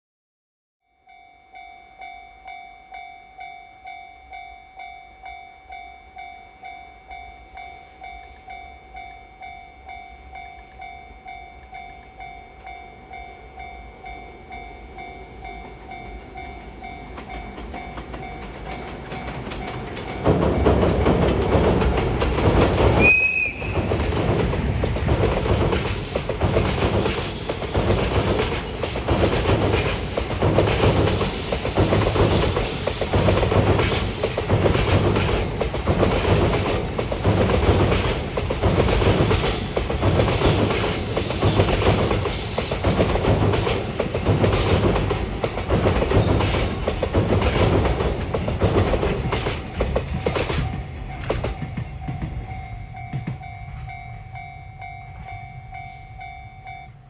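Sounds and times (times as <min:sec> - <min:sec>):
level crossing warning bell: 0:00.8 - 0:57.0
freight train passing: 0:01.1 - 0:57.0
wheels clattering over rail joints: 0:16.3 - 0:53.5
high-pitched train toot: 0:22.8 - 0:24.7.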